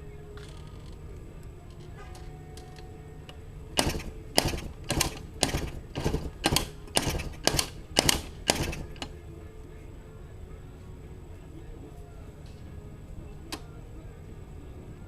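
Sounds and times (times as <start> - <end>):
two-stroke engine popping: 3.8 - 9.1.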